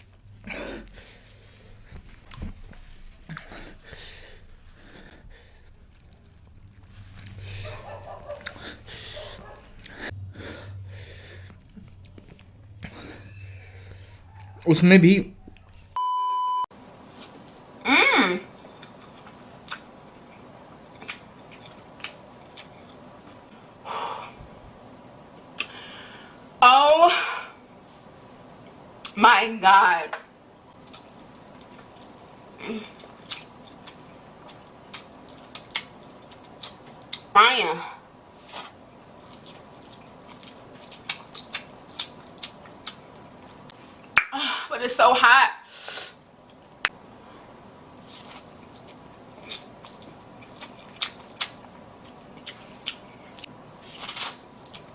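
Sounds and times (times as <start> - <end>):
wet chewing clicks and smacks: 5.8 - 8.6, 18.8 - 23.4, 30.7 - 37.3, 38.1 - 43.3, 47.9 - 53.5, 54.1 - 54.9
high beep: 16.0 - 16.7
person eating noodles: 30.8 - 37.3, 38.3 - 43.2, 47.9 - 51.6.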